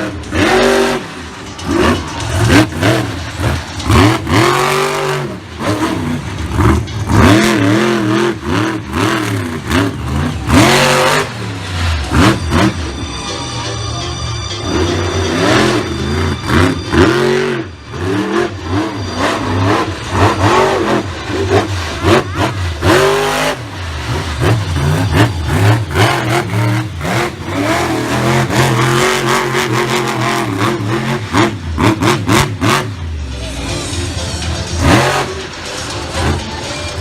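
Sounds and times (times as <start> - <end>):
monster truck engine revving: 0.0 - 13.7, 14.6 - 37.0.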